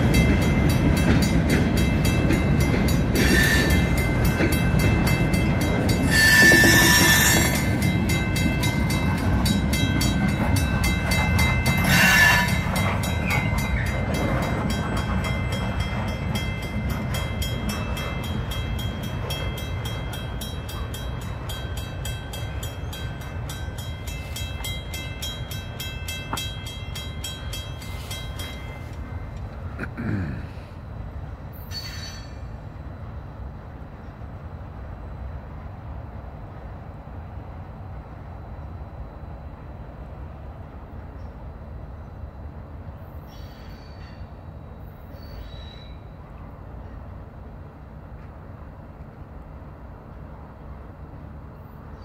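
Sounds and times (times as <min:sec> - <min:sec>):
high ringing from train wheels: 0:00.0 - 0:29.8, 0:30.8 - 0:52.0
wheels clicking over rail joints: 0:00.0 - 0:29.8.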